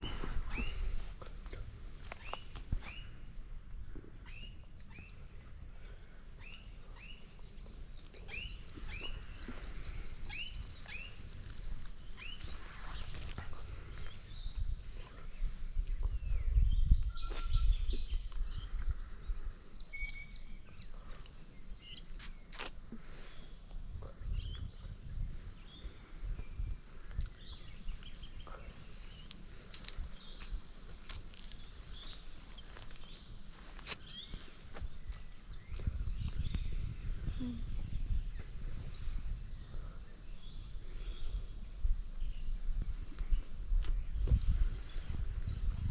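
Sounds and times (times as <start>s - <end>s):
short bird chirps: 17.0s - 22.8s.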